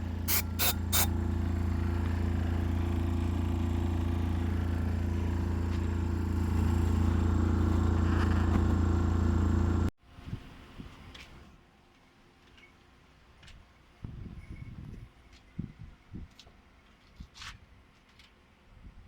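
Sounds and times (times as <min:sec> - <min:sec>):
machine hum: 0:00.0 - 0:09.9.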